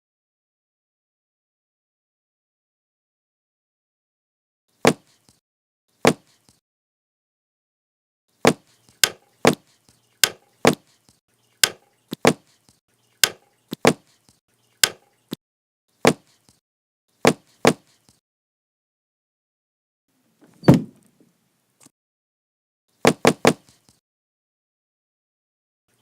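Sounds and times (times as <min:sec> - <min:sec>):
sharp wooden whacks: 0:04.8 - 0:05.2, 0:06.0 - 0:06.4, 0:08.4 - 0:09.6, 0:10.2 - 0:10.8, 0:11.6 - 0:12.4, 0:13.2 - 0:14.0, 0:14.8 - 0:15.0, 0:16.0 - 0:16.3, 0:17.2 - 0:17.9, 0:23.0 - 0:23.8.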